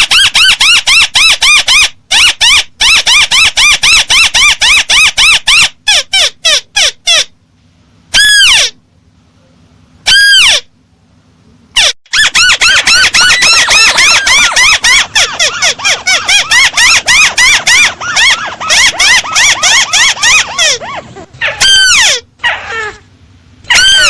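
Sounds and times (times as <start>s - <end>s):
bird whistled call: 11.8s - 15.6s.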